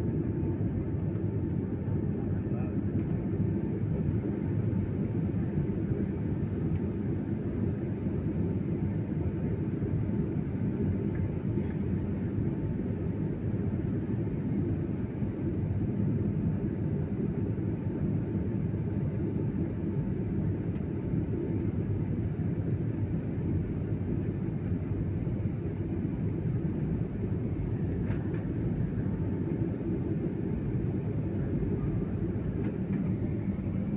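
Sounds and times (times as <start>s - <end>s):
airliner cabin rumble: 0.0s - 33.9s.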